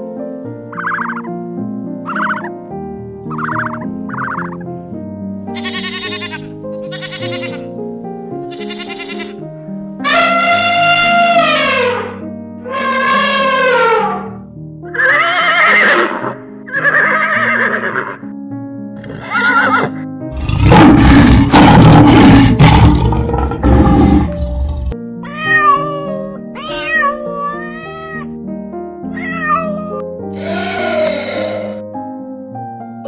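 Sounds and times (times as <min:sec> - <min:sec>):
background music: 0:00.0 - 0:33.0
cat meowing: 0:05.6 - 0:07.6, 0:08.5 - 0:09.3, 0:25.3 - 0:28.3, 0:29.1 - 0:31.8
lion roaring: 0:20.3 - 0:25.0, 0:30.4 - 0:31.8
short pitched animal calls: 0:30.4 - 0:31.8.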